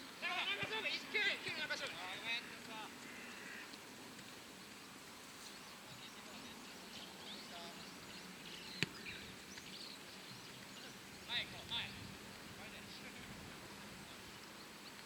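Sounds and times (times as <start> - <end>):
faint distant calls: 0.0 - 15.0
faint open-air background noise: 0.0 - 15.0.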